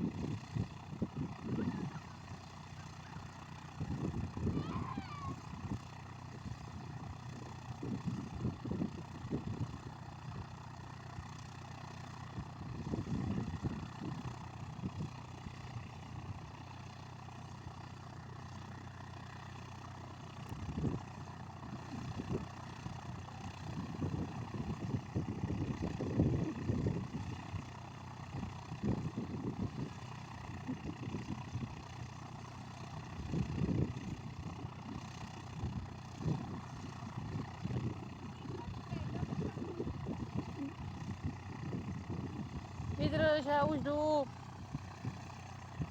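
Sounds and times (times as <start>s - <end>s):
propeller plane engine droning: 0.0s - 45.9s
wind buffeting microphone: 33.2s - 43.9s.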